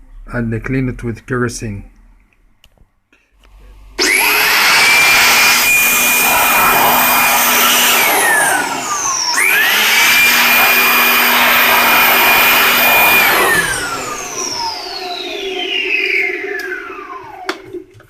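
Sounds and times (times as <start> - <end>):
electric blower whining: 4.0 - 18.0.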